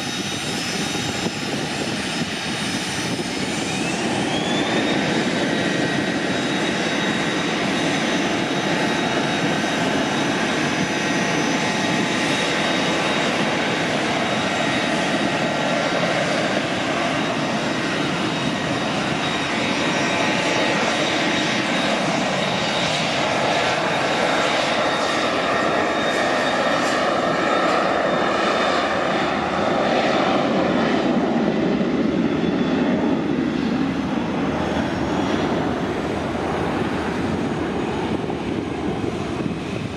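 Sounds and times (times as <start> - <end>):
jet engines whining and roaring: 0.0 - 39.9.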